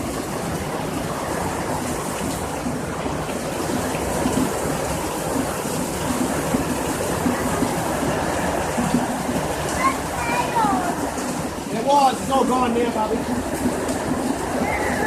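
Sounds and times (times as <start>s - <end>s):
hail and rain falling: 0.0s - 15.0s.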